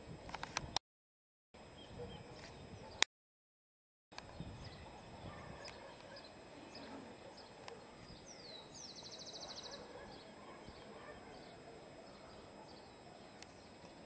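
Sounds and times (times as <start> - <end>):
low background noise: 4.2 - 14.0.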